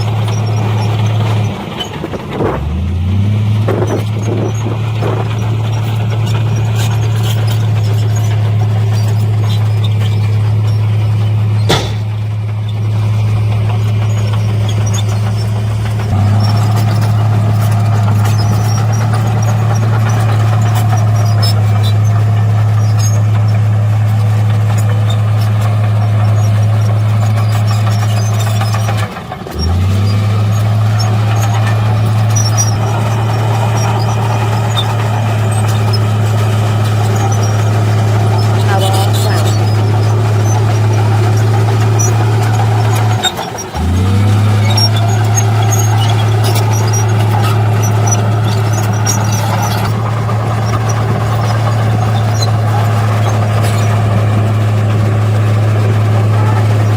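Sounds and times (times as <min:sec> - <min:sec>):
heavy machinery diesel engine running: 0:00.0 - 0:56.9
sharp knock: 0:11.7 - 0:12.2.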